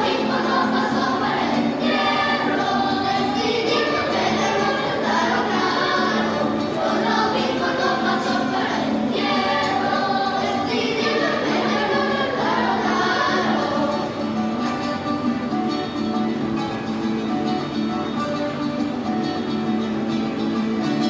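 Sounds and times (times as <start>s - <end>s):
children's choir singing: 0.0s - 15.1s.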